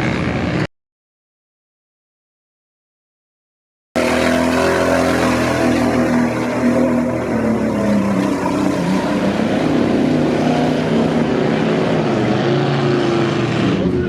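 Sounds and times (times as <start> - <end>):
truck engine revving hard: 4.0 - 14.0.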